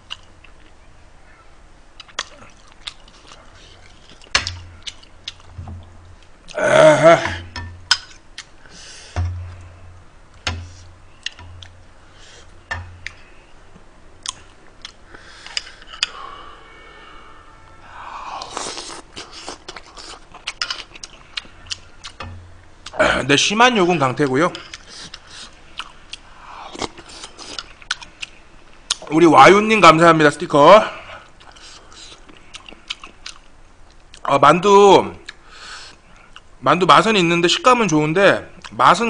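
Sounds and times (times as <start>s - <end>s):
close chewing: 2.0s - 5.6s, 14.2s - 16.1s, 18.4s - 23.0s, 31.2s - 34.3s.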